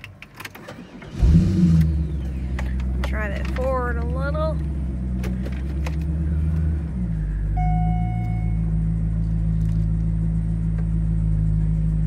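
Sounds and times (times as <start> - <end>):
car engine idling: 0.0 - 12.0
electronic warning tone: 7.6 - 8.7.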